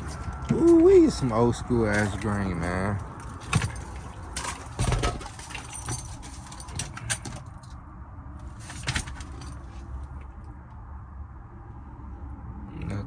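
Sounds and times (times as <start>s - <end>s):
light sharp clicks and rattles: 0.0s - 7.8s, 8.4s - 10.3s.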